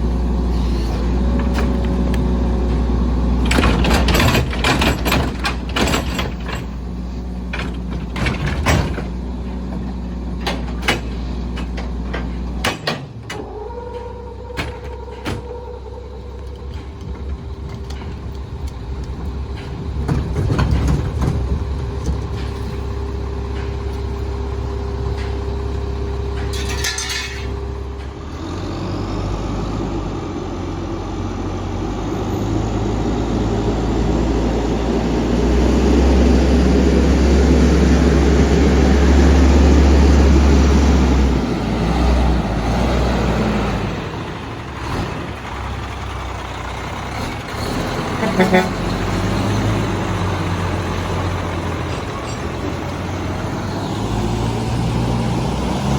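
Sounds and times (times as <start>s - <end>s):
diesel engine whining: 0.0s - 55.9s.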